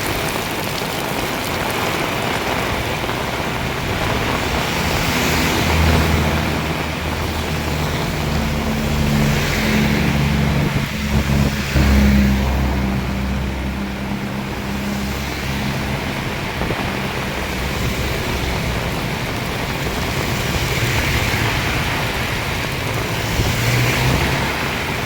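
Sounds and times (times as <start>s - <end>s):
heavy rain pouring: 0.0s - 25.0s
vehicle engine humming: 0.0s - 25.0s.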